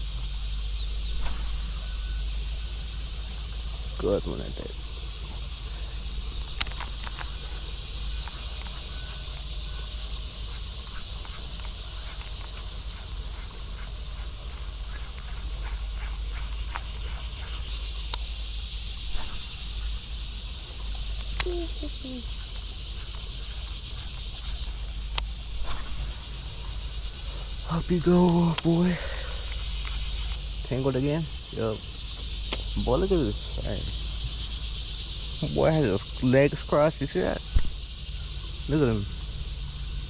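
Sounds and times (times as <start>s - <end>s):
insect chorus chirring: 0.0s - 40.0s
sharp clicks and ticks: 6.5s - 7.3s, 18.1s - 18.3s, 28.2s - 28.8s.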